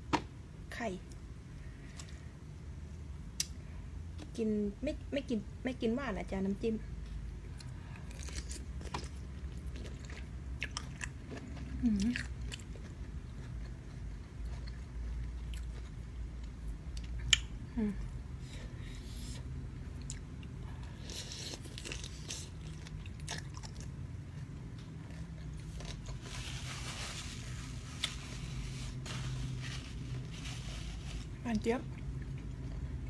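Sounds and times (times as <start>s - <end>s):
crunching and chewing shrimp: 7.3s - 17.7s, 19.1s - 33.0s.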